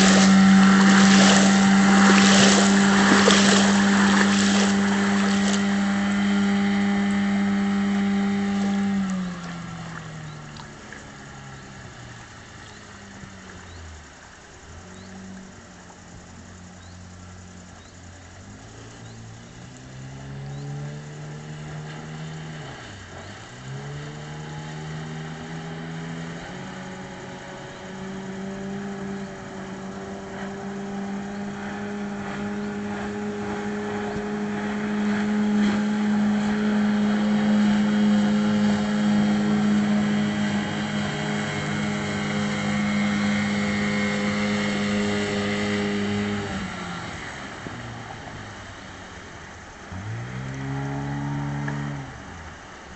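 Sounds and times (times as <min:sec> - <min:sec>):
outboard motor revving: 0:00.0 - 0:52.9.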